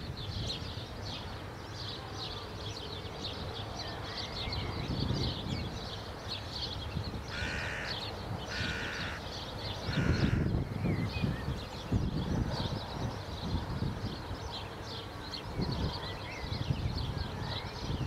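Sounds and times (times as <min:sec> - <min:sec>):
bird harsh caws: 0:07.3 - 0:10.6.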